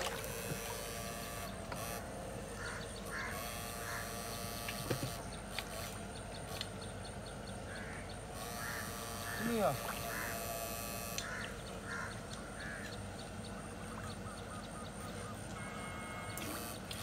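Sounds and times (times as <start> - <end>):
faint short animal calls: 7.8 - 12.8
small clicks: 11.1 - 11.3.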